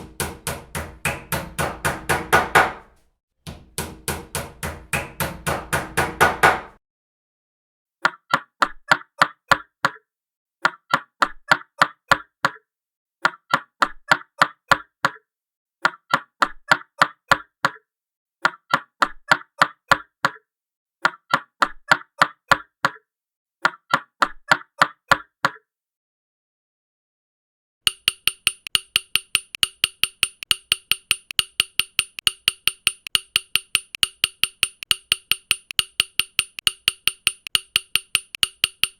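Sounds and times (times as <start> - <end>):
hammer blows: 27.9 - 38.9
ringing knocks: 27.9 - 38.9.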